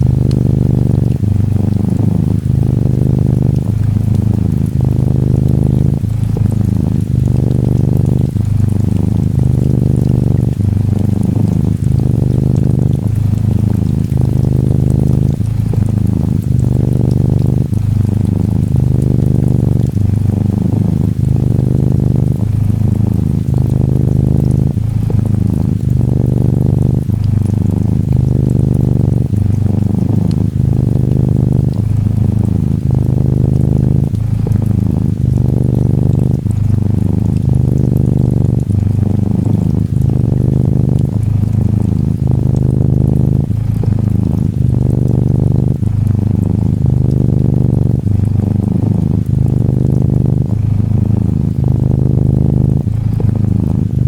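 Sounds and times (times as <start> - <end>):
gentle rain patter: 0.0 - 54.0
kitten purring: 0.0 - 54.0.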